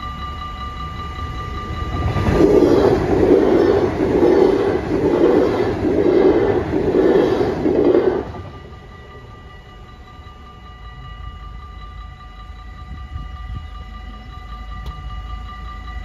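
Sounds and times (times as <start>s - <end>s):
crossing warning bells: 0.0s - 16.0s
train wheels pulsing on rails: 0.0s - 16.0s.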